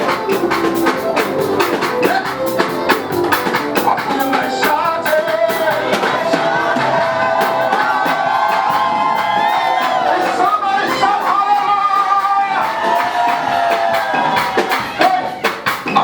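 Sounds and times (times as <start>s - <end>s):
band instruments playing: 0.0s - 16.0s
drums and percussion beat: 0.0s - 16.0s
voices singing: 0.0s - 16.0s.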